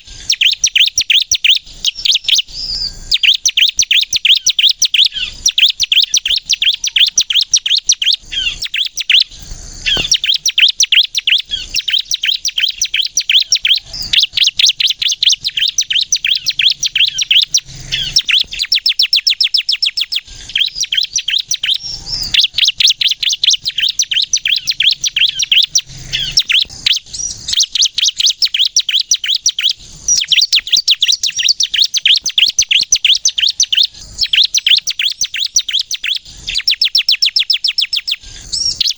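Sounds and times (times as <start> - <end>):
bird singing sharp high chirps: 0.0 - 38.9.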